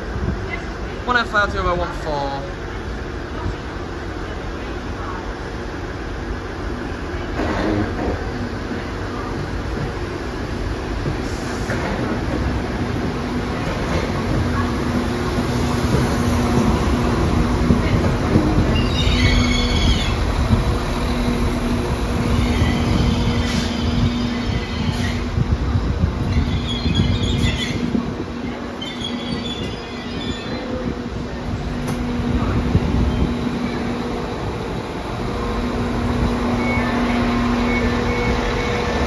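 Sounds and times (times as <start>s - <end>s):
train wheels squealing: 18.7s - 20.2s, 22.3s - 25.3s, 26.3s - 28.0s, 28.7s - 30.8s.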